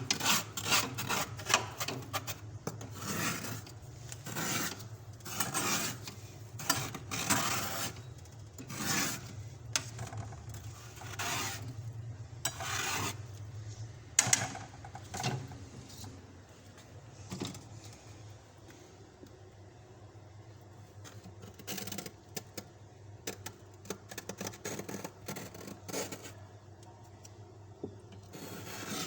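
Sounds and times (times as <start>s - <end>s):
frost being scraped: 0.1s - 9.4s, 10.5s - 11.8s, 12.4s - 13.3s, 28.3s - 29.0s.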